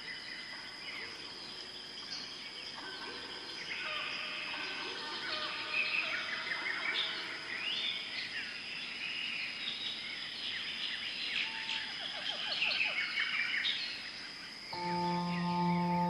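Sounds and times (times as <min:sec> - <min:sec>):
insect drone: 0:00.0 - 0:16.0
birds chirping and trilling: 0:14.6 - 0:16.0.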